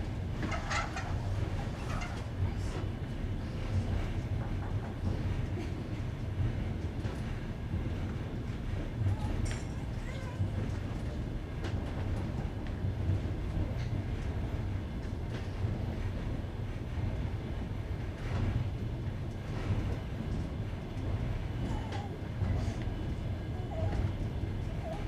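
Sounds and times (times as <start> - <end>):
train wheels rumbling on rail: 0.0 - 25.0
wheels clacking over rail joints: 0.4 - 2.4.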